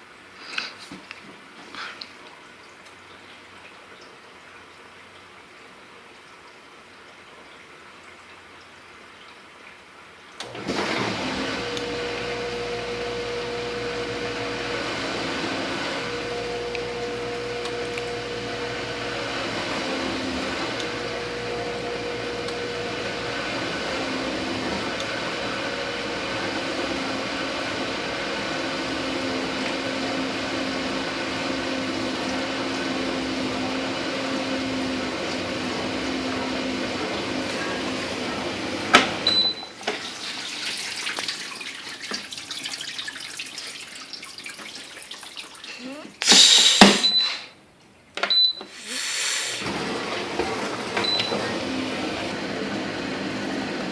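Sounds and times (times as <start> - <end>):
dishwasher pump spraying water: 10.4 - 47.2, 48.6 - 53.9
motor hum: 10.5 - 39.4.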